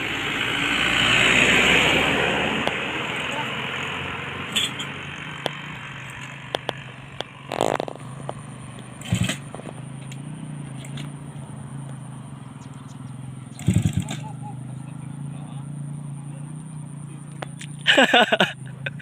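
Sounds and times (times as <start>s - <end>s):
motorcycle engine idling: 2.6s - 19.0s
metallic clicks and clatter: 10.8s - 11.1s.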